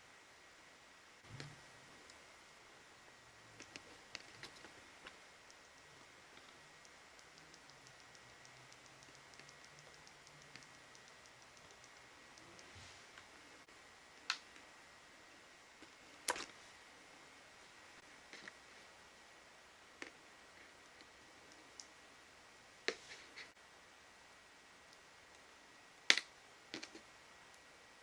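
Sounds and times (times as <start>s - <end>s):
small hard parts clicking: 3.6s - 6.6s, 16.3s - 16.5s.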